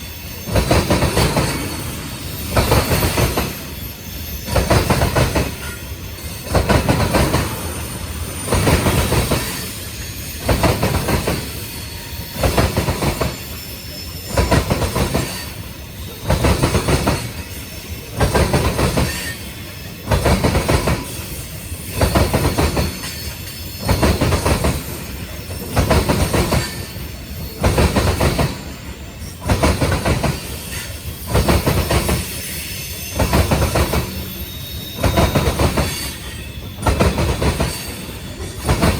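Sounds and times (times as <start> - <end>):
train wheels clattering over rail joint: 0.0 - 38.9.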